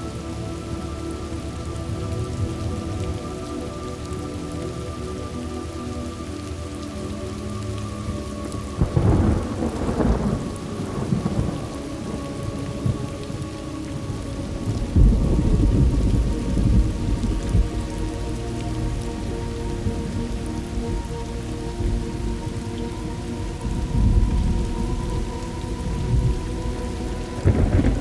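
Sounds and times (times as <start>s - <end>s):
heavy rain: 0.0s - 28.0s
rolling thunder rumble: 8.8s - 28.0s
thunderclap: 27.3s - 28.0s.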